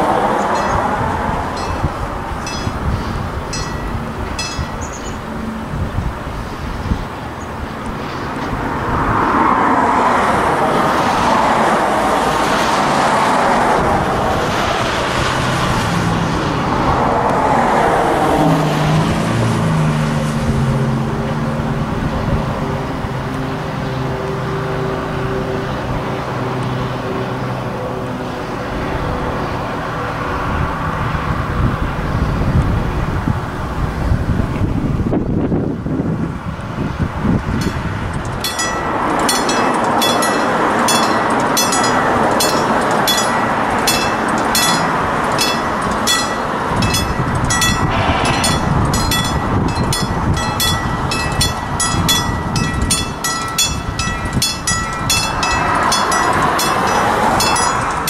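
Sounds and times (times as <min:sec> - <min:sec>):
diesel engine drone: 0:00.0 - 0:58.0
train cars rushing past: 0:00.0 - 0:58.0
train wheel clicks: 0:37.6 - 0:58.0.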